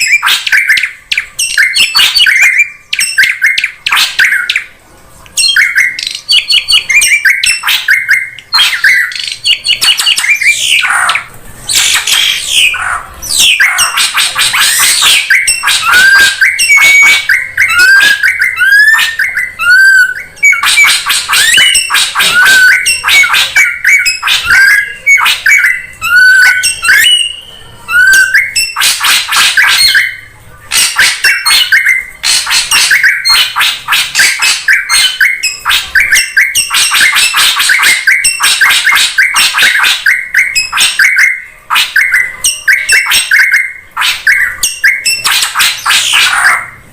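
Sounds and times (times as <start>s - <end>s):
drongo chattering calls: 5.4s - 46.8s.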